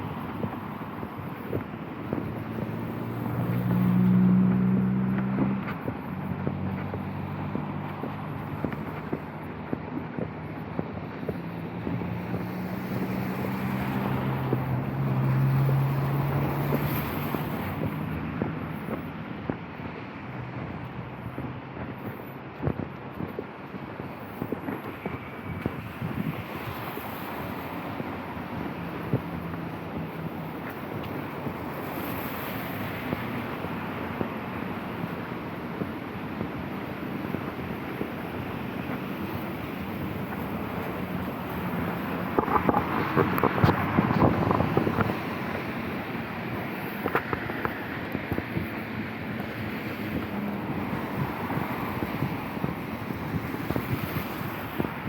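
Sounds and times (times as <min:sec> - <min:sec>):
vehicle passing on wet road: 0:00.0 - 0:23.1, 0:24.1 - 0:55.0
wind on microphone: 0:00.0 - 0:55.0
falling rain: 0:36.0 - 0:54.7.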